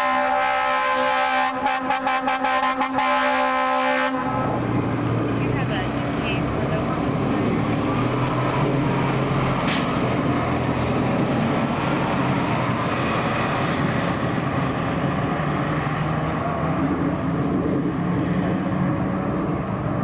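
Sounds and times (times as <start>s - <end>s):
diesel engine running: 4.3s - 20.0s
air brake hiss: 9.6s - 10.0s.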